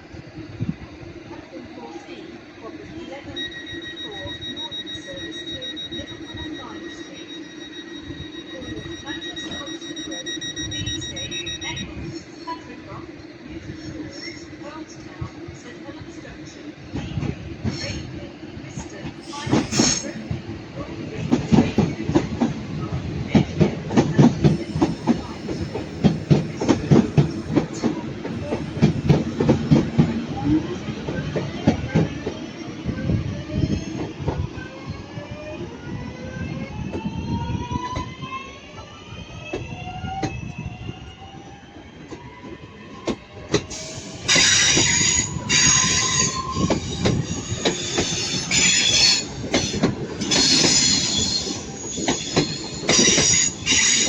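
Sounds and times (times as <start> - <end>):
traction motors whining: 36.9 - 54.0
train wheels clattering over rail joints: 43.0 - 54.0.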